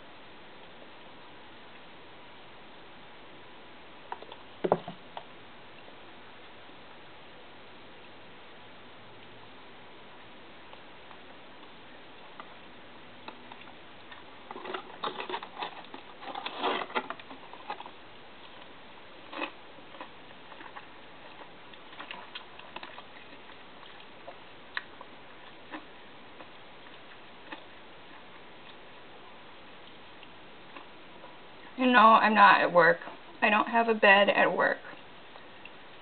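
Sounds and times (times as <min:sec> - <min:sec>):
steady low hiss: 0:00.0 - 0:36.0
food container clicks and rustles: 0:14.5 - 0:18.0.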